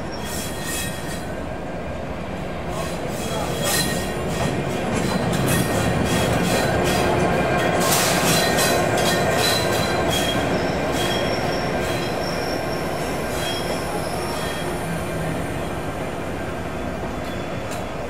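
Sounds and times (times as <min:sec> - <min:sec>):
train rolling on track: 0:00.0 - 0:18.0
high wheel squeals: 0:09.3 - 0:15.0.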